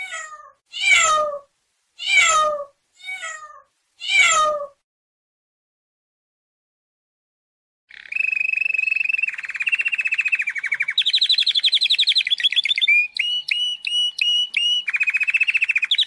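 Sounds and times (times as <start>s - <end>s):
songbird singing trills and chirps: 7.9s - 16.0s.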